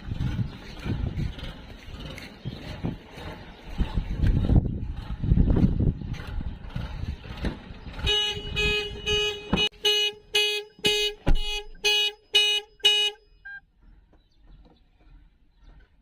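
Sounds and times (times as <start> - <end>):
car alarm horn beeping: 8.0 - 13.6.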